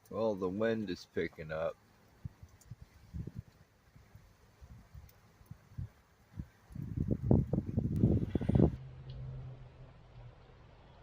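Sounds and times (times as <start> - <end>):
wind gusting against microphone: 2.2 - 8.8.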